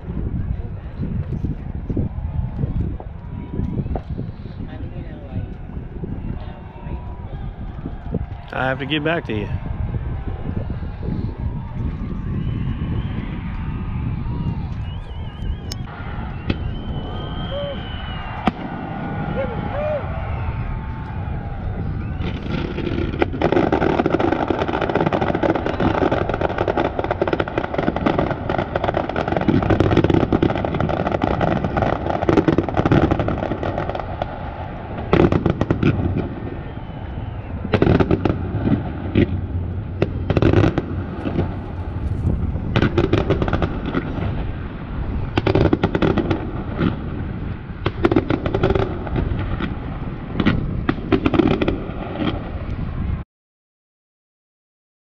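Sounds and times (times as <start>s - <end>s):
fireworks bangs and crackling: 0.0s - 53.2s
low rumble: 9.5s - 23.4s, 33.5s - 47.9s.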